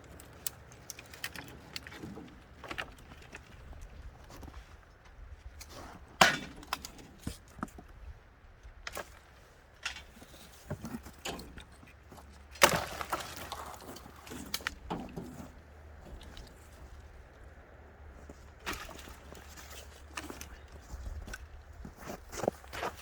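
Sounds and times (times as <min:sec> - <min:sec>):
twigs snapping: 0:00.0 - 0:04.6, 0:11.0 - 0:15.2
wood cracking and splintering: 0:00.0 - 0:04.7, 0:05.5 - 0:08.0, 0:08.8 - 0:17.4, 0:18.2 - 0:23.0.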